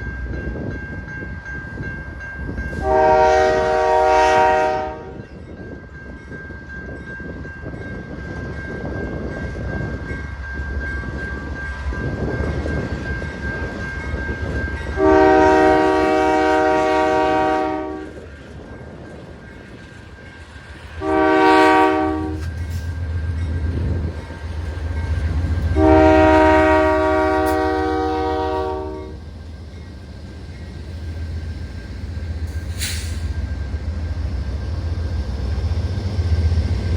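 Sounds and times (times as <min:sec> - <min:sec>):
diesel locomotive rumbling: 0:00.0 - 0:36.9
train air horn blasts: 0:02.8 - 0:05.2, 0:15.0 - 0:18.2, 0:21.0 - 0:22.5, 0:25.7 - 0:29.2.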